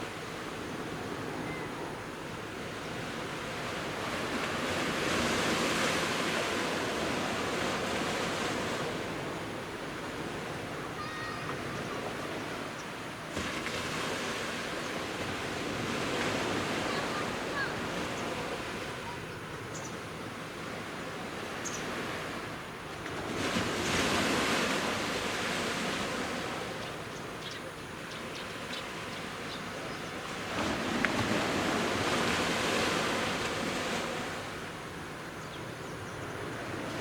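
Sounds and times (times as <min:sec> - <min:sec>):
sea surf washing onto beach: 0:00.0 - 0:19.5, 0:29.0 - 0:35.4.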